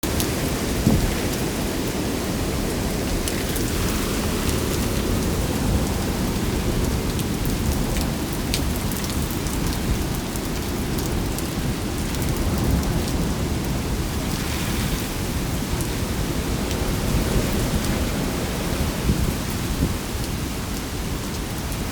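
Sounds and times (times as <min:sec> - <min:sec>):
raindrops ticking on surfaces: 0:00.0 - 0:14.4
heavy rain rushing: 0:00.0 - 0:21.9
low wind rumble: 0:00.0 - 0:21.9.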